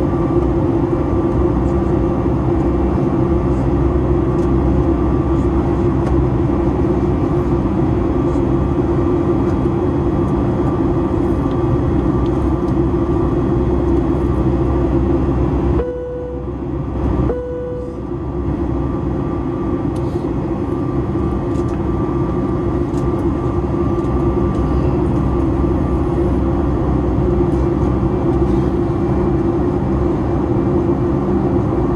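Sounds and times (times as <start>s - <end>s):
jet engines running: 0.0s - 31.9s
low hum: 0.0s - 31.9s
faint steady whine: 11.1s - 29.8s.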